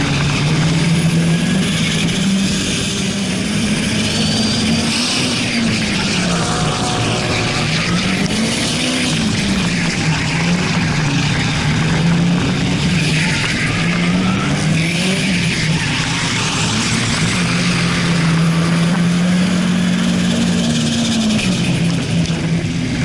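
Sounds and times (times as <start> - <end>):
car engine at high revs: 0.0 - 23.0
tyre squeal: 3.9 - 10.5.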